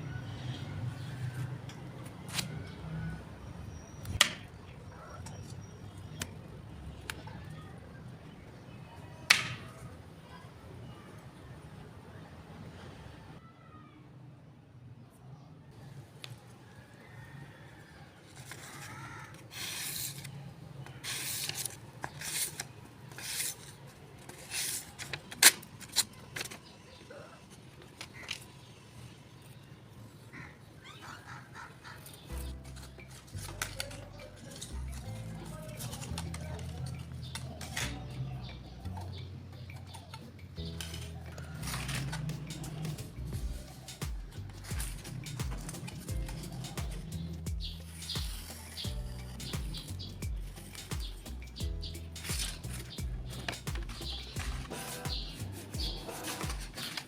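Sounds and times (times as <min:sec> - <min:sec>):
knife scraping on a sharpener: 0:21.0 - 0:24.9, 0:44.6 - 0:57.0.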